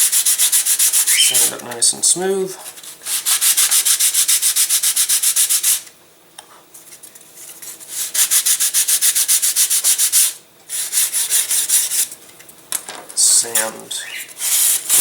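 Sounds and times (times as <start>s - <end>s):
sandpaper rubbing on wood: 0.0s - 1.6s, 2.7s - 5.8s, 7.6s - 12.1s, 14.4s - 15.0s.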